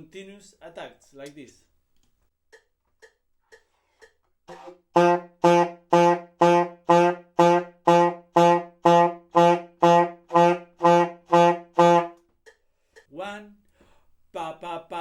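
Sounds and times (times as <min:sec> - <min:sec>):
metronome ticks: 0:01.2 - 0:13.8
saxophone repeating low note: 0:04.5 - 0:12.2.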